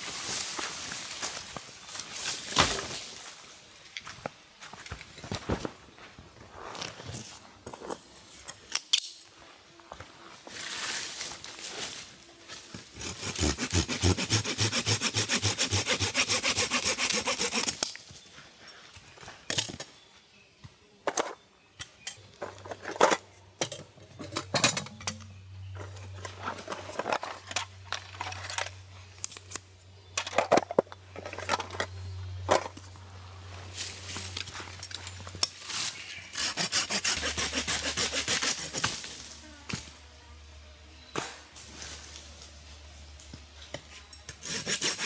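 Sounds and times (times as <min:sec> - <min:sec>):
saw cutting wood: 0:13.0 - 0:17.8, 0:36.3 - 0:39.2, 0:44.4 - 0:45.0.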